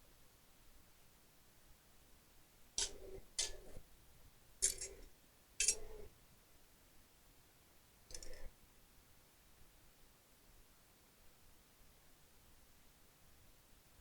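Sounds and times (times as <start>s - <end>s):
laptop parts clicking and rattling: 2.8s - 3.8s, 4.6s - 6.0s, 8.1s - 8.4s.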